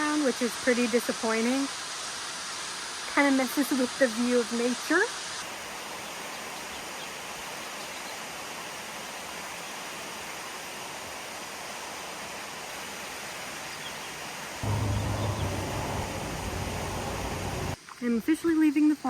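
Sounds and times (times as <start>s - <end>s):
waterfall rushing: 14.3s - 17.8s.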